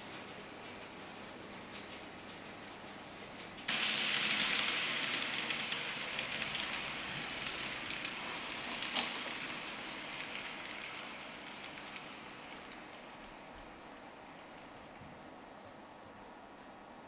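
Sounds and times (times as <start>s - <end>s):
rail joint clicks: 1.7s - 15.2s
model train wheels rattling on rails: 3.5s - 15.3s.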